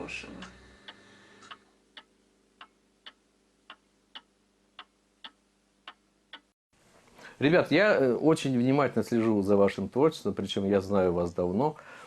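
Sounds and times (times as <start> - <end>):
clock ticking: 0.4 - 6.5.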